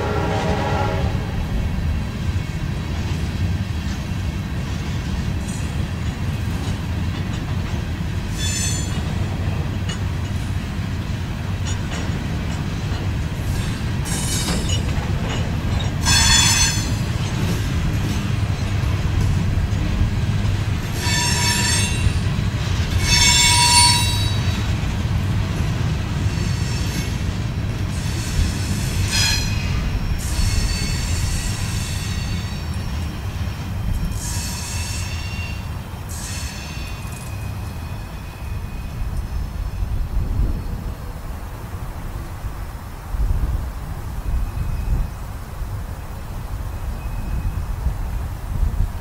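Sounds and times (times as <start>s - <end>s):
high ringing wheel squeals: 8.3s - 9.1s, 16.0s - 17.2s, 20.9s - 22.3s, 23.0s - 24.7s, 28.0s - 40.0s, 46.9s - 47.7s.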